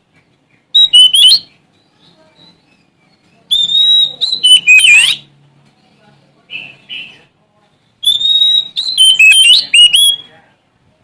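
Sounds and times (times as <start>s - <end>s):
bird singing whistled phrases: 0.7s - 1.6s, 2.4s - 5.3s, 8.0s - 10.4s.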